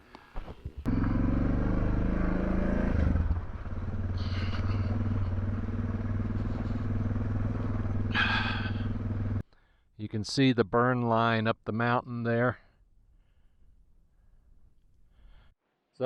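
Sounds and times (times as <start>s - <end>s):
motorcycle engine running: 0.8s - 9.4s.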